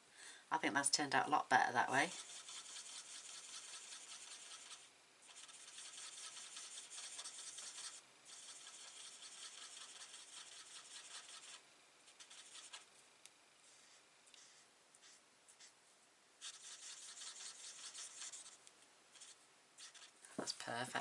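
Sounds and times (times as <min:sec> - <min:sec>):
colouring tool rubbing on cardstock: 0:02.0 - 0:12.9, 0:13.6 - 0:15.8, 0:16.4 - 0:18.6, 0:19.2 - 0:20.2.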